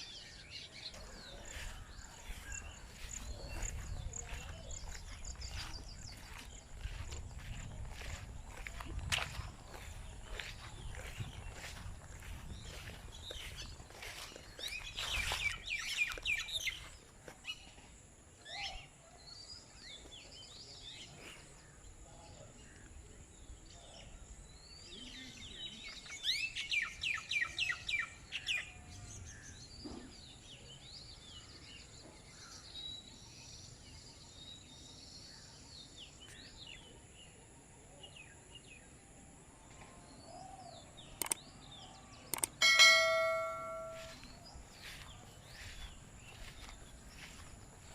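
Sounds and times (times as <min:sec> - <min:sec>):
birds singing and calling: 0:00.0 - 0:47.9.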